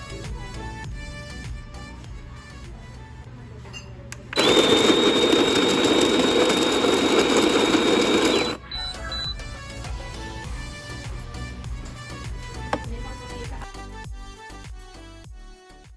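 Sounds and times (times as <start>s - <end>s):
electric coffee grinder: 4.3s - 8.6s.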